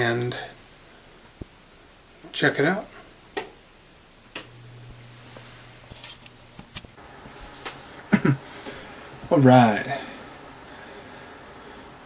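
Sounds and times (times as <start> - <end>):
low steady hum: 3.7 - 12.0.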